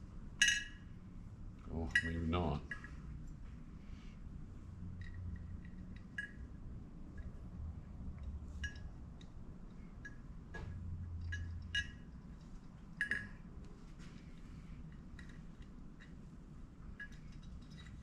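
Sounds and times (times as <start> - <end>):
small metal parts clinking: 11.2 - 13.4, 16.9 - 18.0.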